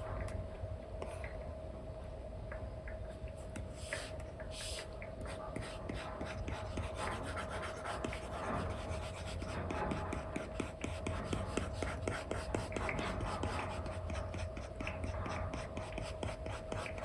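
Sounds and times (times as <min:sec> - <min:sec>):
faint steady hum: 0:00.0 - 0:17.0
stylus scratching and tapping on screen: 0:03.6 - 0:17.0.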